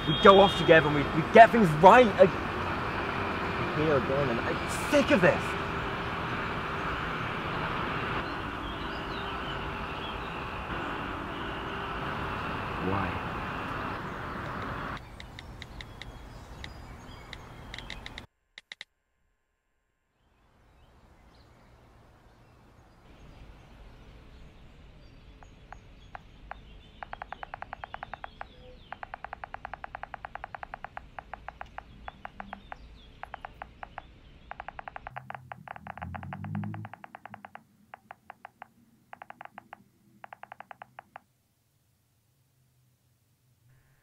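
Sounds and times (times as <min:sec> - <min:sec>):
low outdoor hum: 0:00.0 - 0:18.3, 0:19.1 - 0:40.6
bird rattling chatter: 0:26.5 - 0:41.1.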